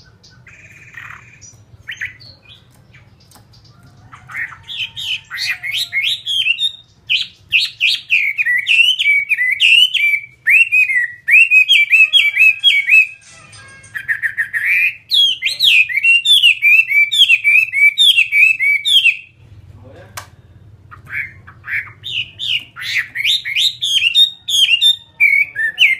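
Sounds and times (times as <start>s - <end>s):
bird singing whistled notes: 4.8s - 13.2s, 14.1s - 19.4s, 21.7s - 25.9s.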